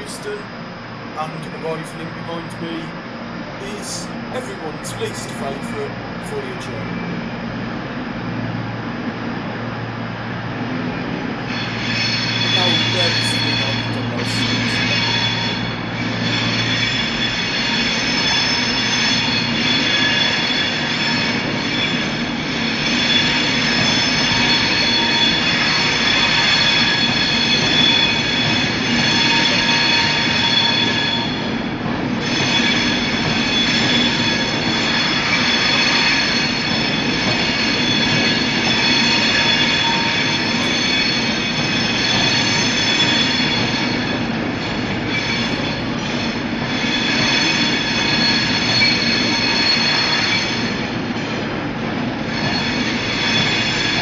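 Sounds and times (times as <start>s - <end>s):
low train rumble: 0.0s - 54.0s
train wheels squealing: 11.3s - 51.6s, 52.2s - 54.0s.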